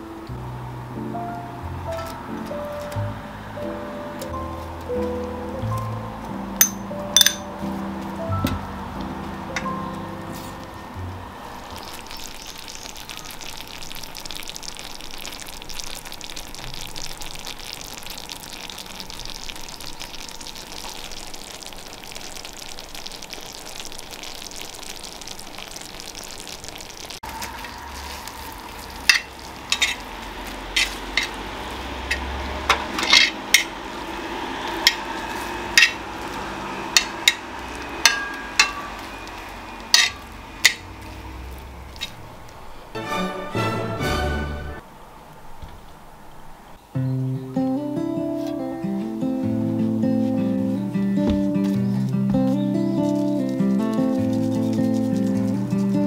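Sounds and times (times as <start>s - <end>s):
corn sizzling in oil: 11.4s - 44.2s, 49.8s - 56.0s
metal tongs clicking on griddle: 35.8s - 36.0s, 39.9s - 40.8s.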